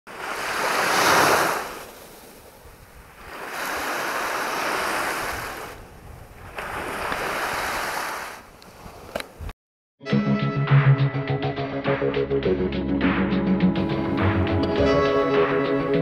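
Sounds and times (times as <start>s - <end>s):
sea waves breaking on shore: 0.1s - 9.2s.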